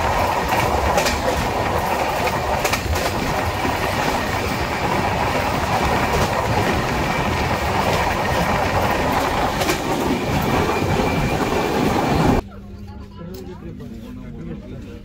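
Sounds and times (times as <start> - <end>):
train wheels rumbling on rails: 0.0 - 12.4.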